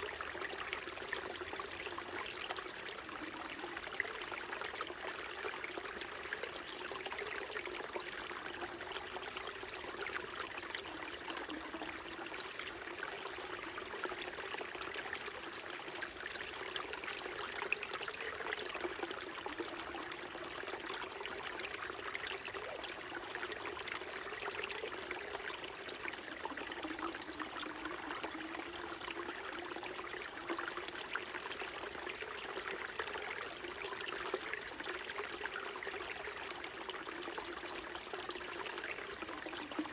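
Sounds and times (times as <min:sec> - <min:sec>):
stream trickling over rocks: 0:00.0 - 0:39.9.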